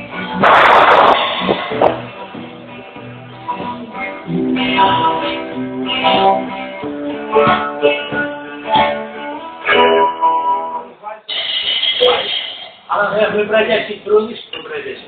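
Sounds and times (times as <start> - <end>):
guitar plucking melody: 0.0 - 11.0.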